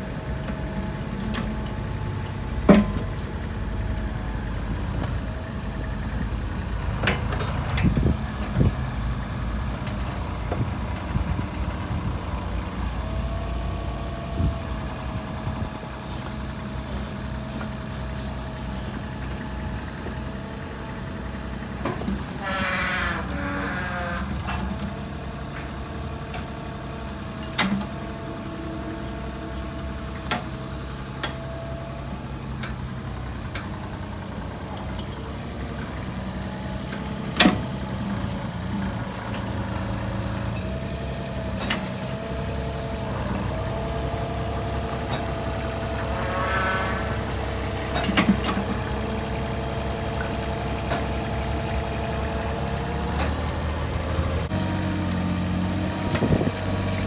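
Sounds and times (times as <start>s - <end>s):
excavator diesel engine running: 0.0s - 57.0s
engine whine shifting pitch: 43.2s - 49.0s.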